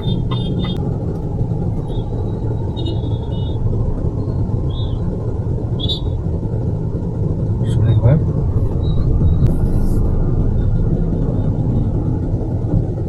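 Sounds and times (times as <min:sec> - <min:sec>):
road and tyre noise: 0:00.0 - 0:13.0.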